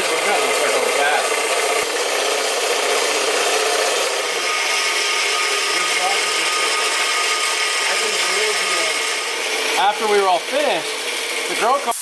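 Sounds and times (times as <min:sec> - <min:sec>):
bandsaw cutting metal tubing: 0:00.0 - 0:12.0.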